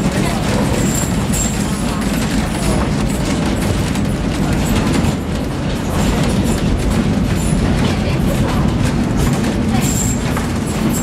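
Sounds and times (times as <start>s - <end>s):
train rumbling on rails: 0.0s - 11.0s
train wheels clicking and clacking: 0.0s - 11.0s.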